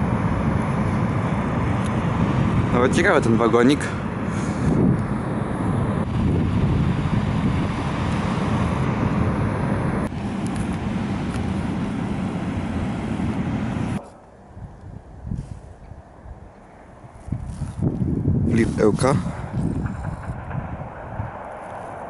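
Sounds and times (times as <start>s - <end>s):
train wheels rumbling on rails: 0.0s - 14.2s, 17.3s - 22.0s.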